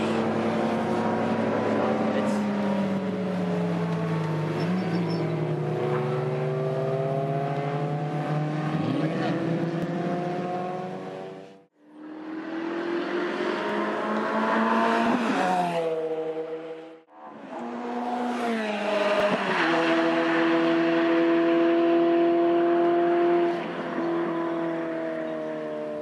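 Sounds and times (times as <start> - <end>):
race car engine revving: 4.2 - 24.8.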